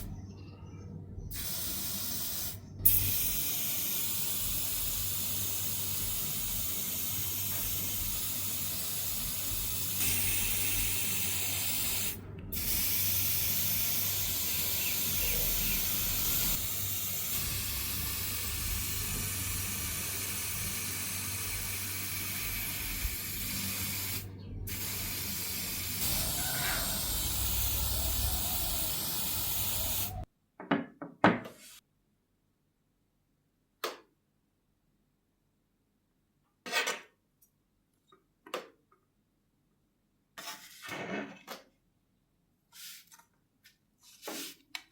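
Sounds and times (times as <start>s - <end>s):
spray paint hiss: 1.3s - 30.3s.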